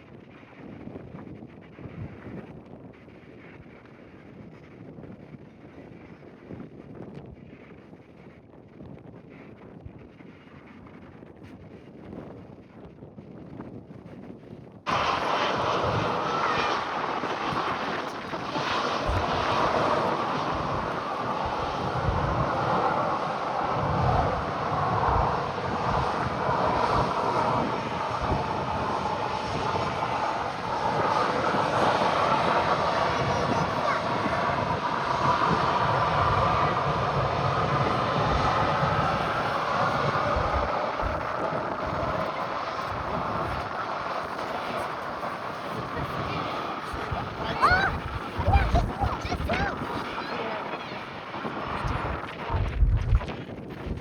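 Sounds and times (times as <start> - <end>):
wind buffeting microphone: 0.0 - 54.0
jet engines roaring: 14.9 - 54.0.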